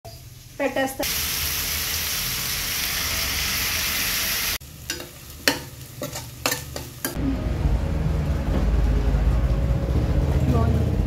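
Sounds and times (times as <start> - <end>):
chicken sizzling in oil: 0.1 - 7.2
steady low rumble: 7.2 - 11.0.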